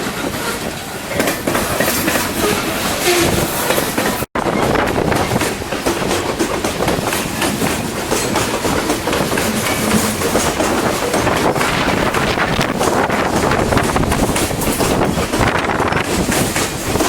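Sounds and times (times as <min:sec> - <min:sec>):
freight train wheels clacking: 0:00.0 - 0:17.0.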